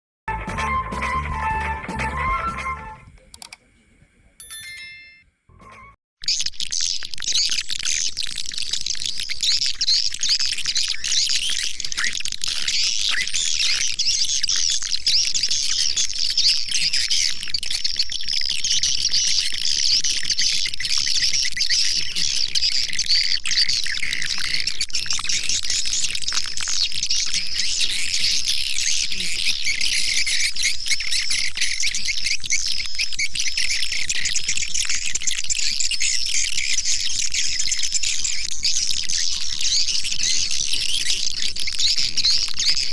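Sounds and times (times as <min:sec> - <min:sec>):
swiftlets twittering: 0:06.2 - 0:42.9.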